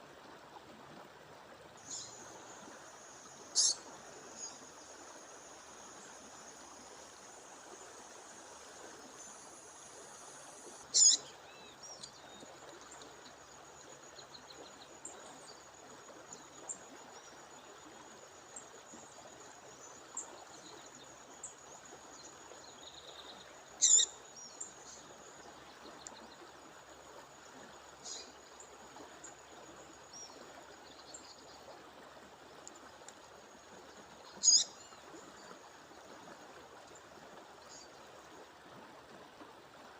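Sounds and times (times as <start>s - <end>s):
flowing water rushing: 0.0s - 39.9s
faint bird chirps: 3.3s - 4.6s, 10.9s - 12.4s, 22.8s - 25.0s, 34.3s - 35.5s
bird short sharp call: 3.6s - 3.8s, 11.0s - 11.2s.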